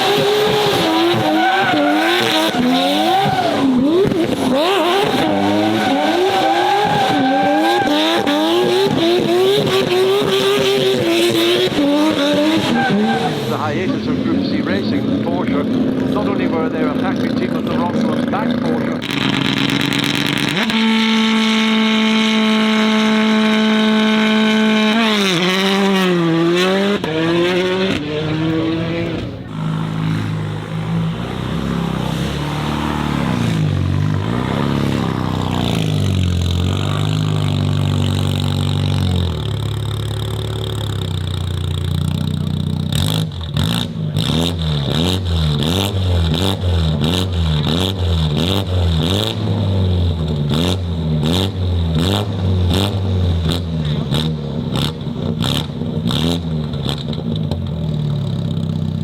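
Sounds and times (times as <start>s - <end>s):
car engines revving hard: 0.0s - 58.7s
exhaust crackles and pops: 13.6s - 25.0s, 33.3s - 49.4s, 52.3s - 58.8s.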